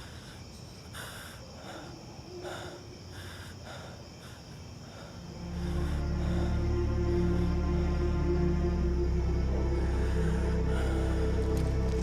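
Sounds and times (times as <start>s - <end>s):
crickets chirring: 0.0s - 12.0s
dark sustained drama music: 4.8s - 12.0s.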